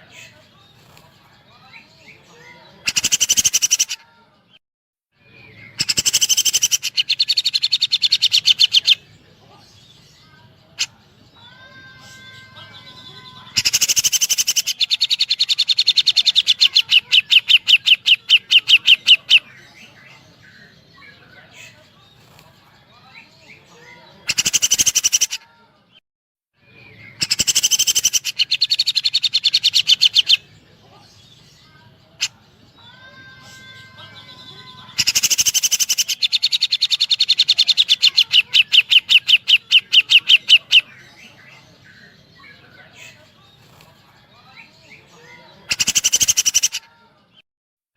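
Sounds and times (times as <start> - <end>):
bird sharp rapid chirps: 2.9 - 4.0, 5.7 - 9.0, 13.6 - 19.5, 24.3 - 25.4, 27.1 - 30.4, 34.9 - 40.9, 45.7 - 46.8.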